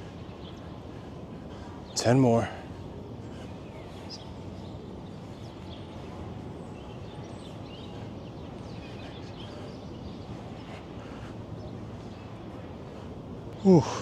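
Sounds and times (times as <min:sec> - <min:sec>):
city background noise: 0:00.0 - 0:14.0
faint bird chirps: 0:03.2 - 0:14.0.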